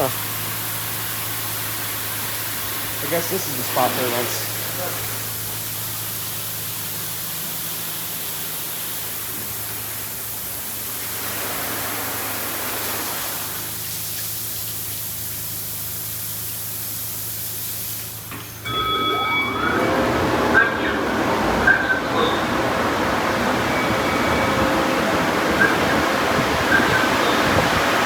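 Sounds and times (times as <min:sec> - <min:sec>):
high-pressure spray hissing: 0:00.0 - 0:18.6
steady tones: 0:18.6 - 0:28.0.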